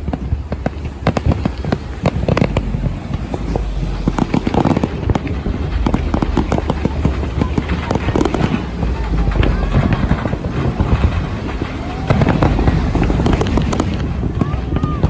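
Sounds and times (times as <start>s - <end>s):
fireworks bangs and crackling: 0.0s - 15.0s
low rumble: 0.0s - 15.0s.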